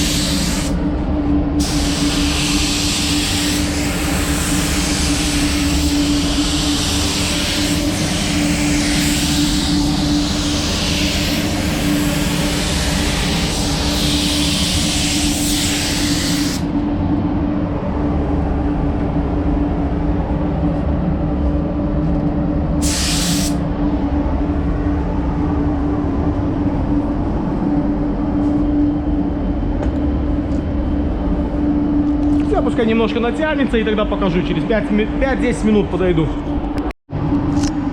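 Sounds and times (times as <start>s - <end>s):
spray gun air hiss: 0.0s - 0.8s, 1.6s - 16.8s, 22.8s - 23.6s
low machine hum: 0.0s - 37.9s.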